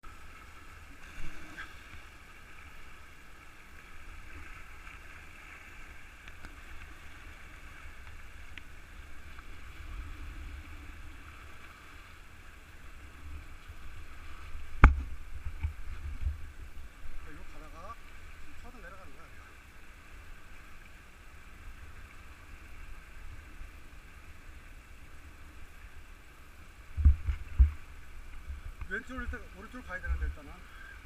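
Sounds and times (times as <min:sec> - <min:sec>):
sharp knock: 0:14.8 - 0:15.1.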